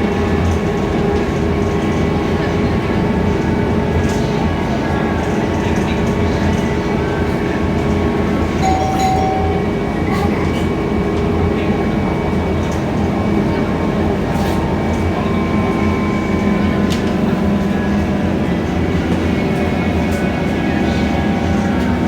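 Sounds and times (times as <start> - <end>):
bus engine hum: 0.0 - 22.0
road noise: 0.0 - 22.0
short high tone: 8.6 - 9.8.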